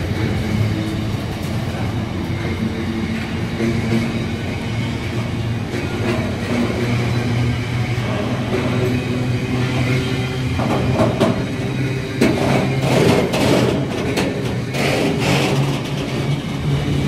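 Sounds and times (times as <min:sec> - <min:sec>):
wheels rumbling on rail: 0:00.0 - 0:17.0
freight wagons knocking and clattering: 0:10.5 - 0:17.0.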